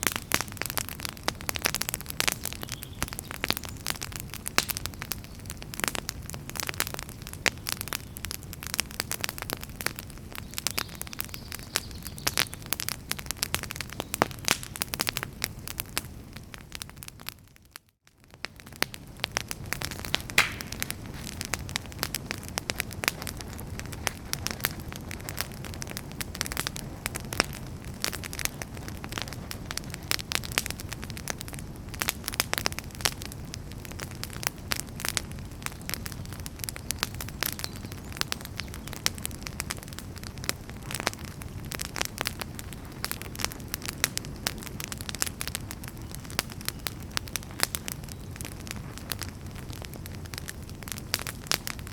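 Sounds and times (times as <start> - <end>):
fire crackling in a fireplace: 0.0 - 51.9.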